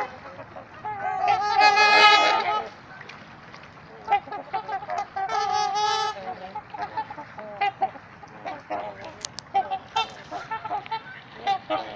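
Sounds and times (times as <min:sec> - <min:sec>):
swans honking: 0:00.0 - 0:11.9.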